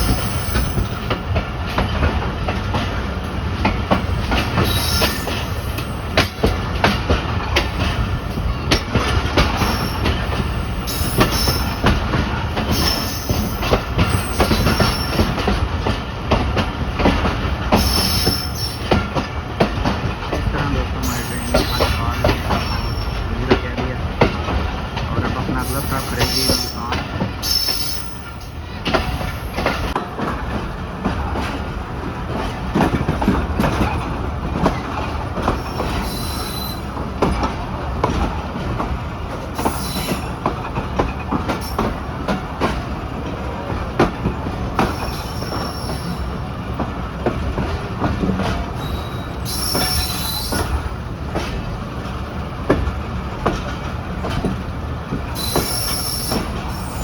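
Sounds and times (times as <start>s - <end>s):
train rumble on rails: 0.0s - 57.0s
wheels clacking over rail joints: 0.0s - 57.0s
high wheel squeal: 17.8s - 18.9s, 21.0s - 23.3s, 27.4s - 28.4s, 48.8s - 50.8s, 55.4s - 57.0s.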